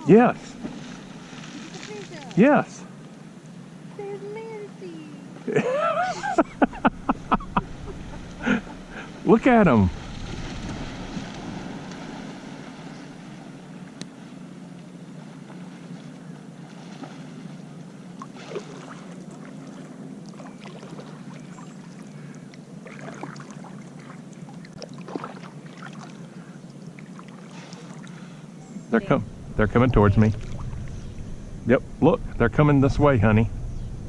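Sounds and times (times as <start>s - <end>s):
water lapping and splashing: 0.0s - 3.0s, 4.9s - 32.2s
steady low hum: 0.0s - 34.0s.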